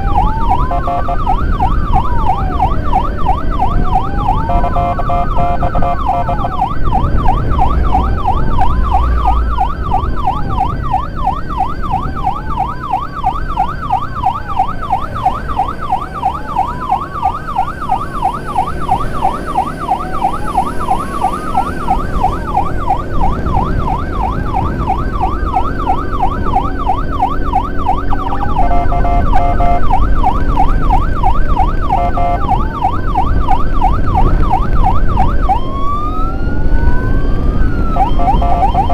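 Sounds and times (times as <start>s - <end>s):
siren wail: 0.0s - 38.9s
siren yelp: 0.0s - 38.9s
vehicle engine and road rumble: 0.0s - 38.9s.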